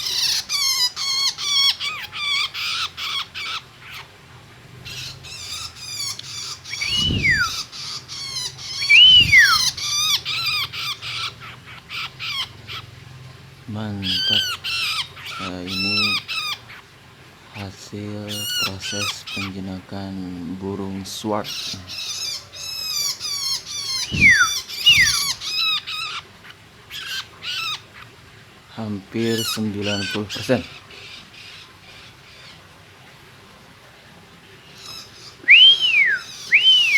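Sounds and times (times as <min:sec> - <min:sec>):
bird harsh chattering calls: 0:00.0 - 0:04.2, 0:04.8 - 0:13.0, 0:13.8 - 0:19.8, 0:21.4 - 0:28.2, 0:29.1 - 0:32.6, 0:34.7 - 0:36.9
falling whistles: 0:06.7 - 0:07.7, 0:08.8 - 0:09.9, 0:24.0 - 0:25.4, 0:35.4 - 0:36.9
bird drawn-out rising falling notes: 0:06.8 - 0:07.7, 0:08.8 - 0:09.8.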